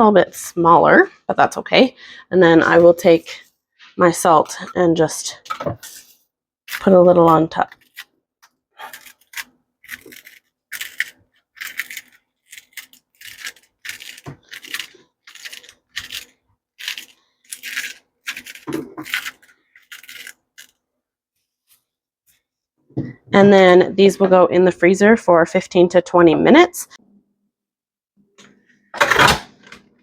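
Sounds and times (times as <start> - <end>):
gritty salt rasps: 8.8 - 20.8.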